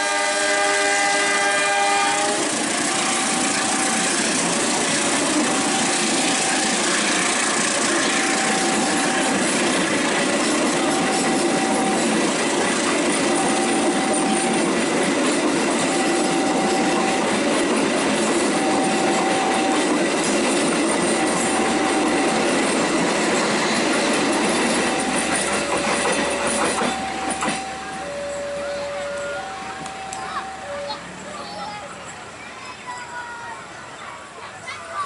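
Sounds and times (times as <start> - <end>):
train wheels clattering on rails: 1.0 - 33.4
two-tone warning signal: 1.7 - 22.7, 23.9 - 31.7.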